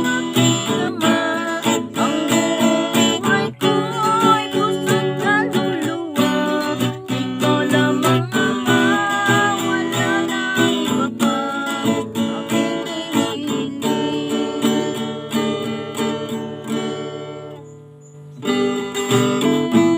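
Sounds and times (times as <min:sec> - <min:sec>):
acoustic guitar strumming: 0:00.0 - 0:19.9.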